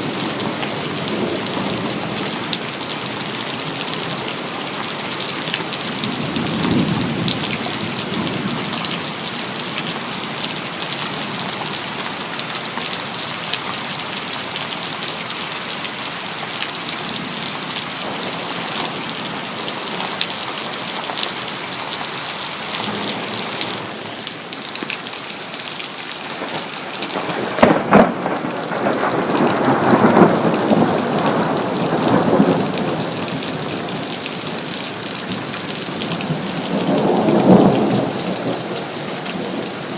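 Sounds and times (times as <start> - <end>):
heavy rain hissing and pattering: 0.0 - 39.9
thunder crack and rumble: 26.4 - 33.7.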